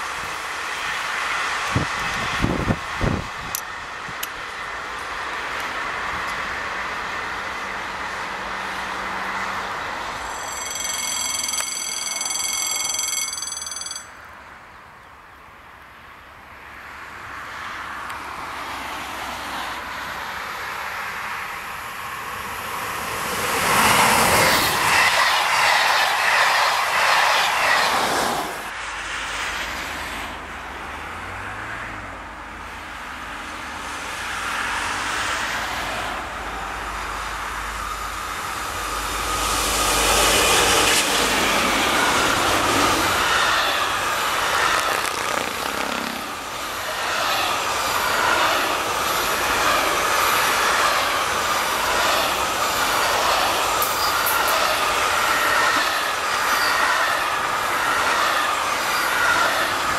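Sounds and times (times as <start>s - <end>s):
freight train rumbling past: 0.0s - 12.3s, 16.7s - 59.9s
passenger train passing: 0.0s - 59.9s
level crossing bell ringing: 10.2s - 14.3s.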